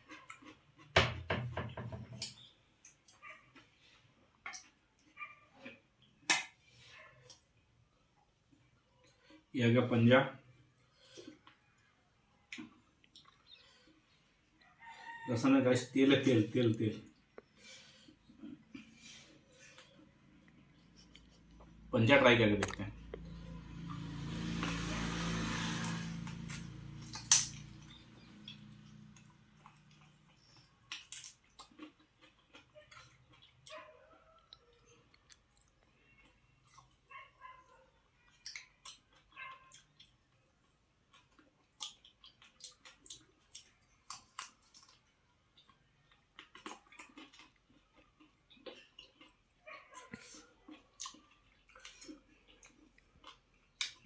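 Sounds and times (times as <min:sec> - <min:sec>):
person chewing with crunches: 0:00.0 - 0:01.0, 0:12.5 - 0:14.6, 0:16.6 - 0:21.9, 0:22.5 - 0:54.0.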